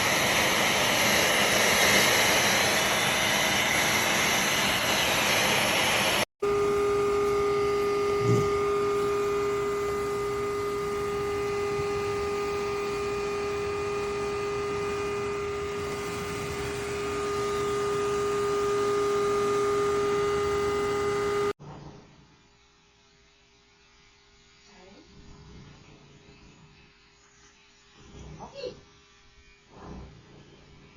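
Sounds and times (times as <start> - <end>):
grooming clipper motor humming: 0.0 - 21.6, 23.8 - 30.9.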